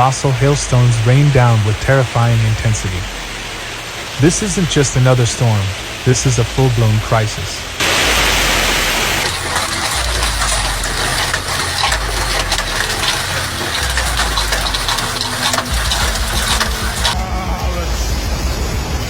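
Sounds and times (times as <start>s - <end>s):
hailstones clattering: 7.8s - 17.2s
steady rushing noise: 7.8s - 17.3s.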